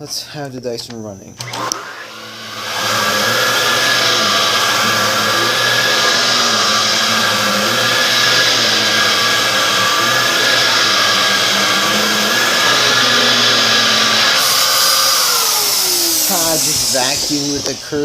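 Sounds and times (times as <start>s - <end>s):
vacuum cleaner running: 1.0s - 18.0s.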